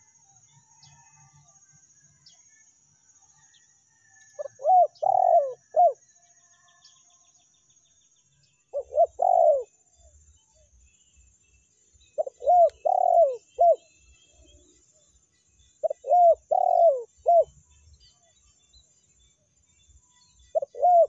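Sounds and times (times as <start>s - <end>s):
dove cooing: 4.4s - 6.0s, 8.7s - 9.8s, 12.2s - 13.9s, 15.8s - 17.5s, 20.5s - 21.0s.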